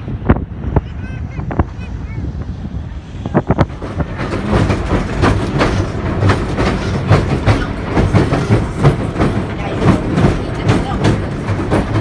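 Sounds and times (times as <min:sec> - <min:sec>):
low train rumble: 0:00.0 - 0:12.0
train wheels clattering over rail joints: 0:03.4 - 0:12.0.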